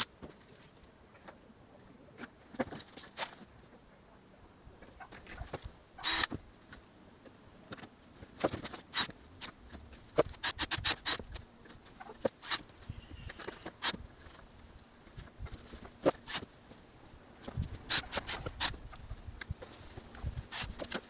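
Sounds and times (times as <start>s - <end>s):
short scrape: 17.8s - 18.8s.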